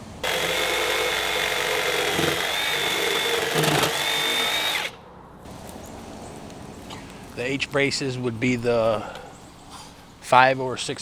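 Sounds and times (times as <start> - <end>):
power tool whining: 0.2 - 5.0.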